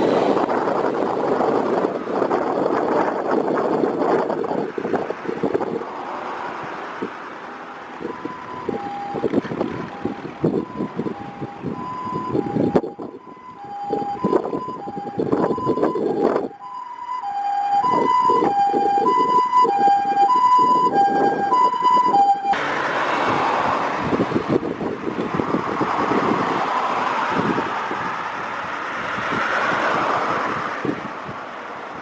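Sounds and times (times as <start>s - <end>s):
two-tone siren: 0.3s - 6.1s, 8.0s - 23.4s.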